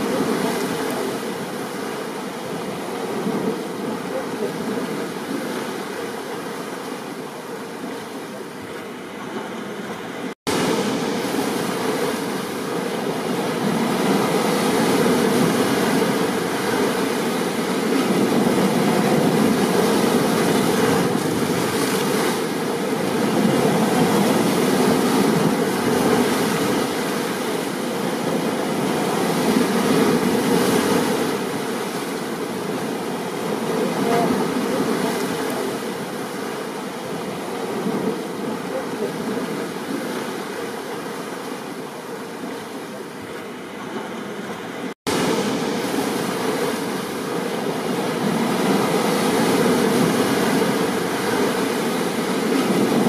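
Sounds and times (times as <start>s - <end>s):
ocean surf: 0.0s - 53.0s
rain: 10.2s - 43.5s.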